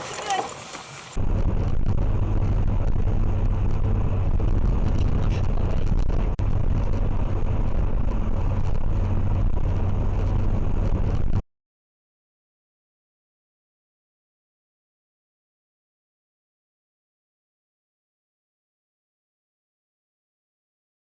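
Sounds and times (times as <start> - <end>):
vehicle engine and road rumble: 0.0 - 11.4.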